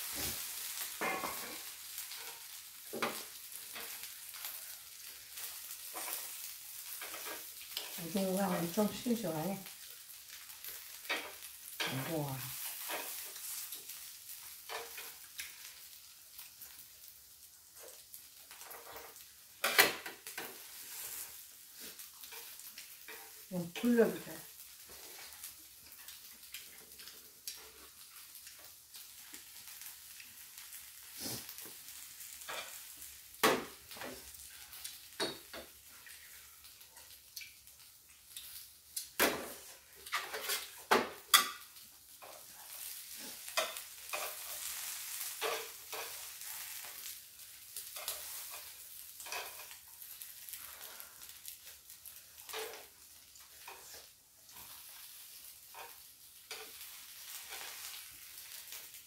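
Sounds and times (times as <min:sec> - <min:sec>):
pancake sizzling on griddle: 0:00.0 - 0:59.0.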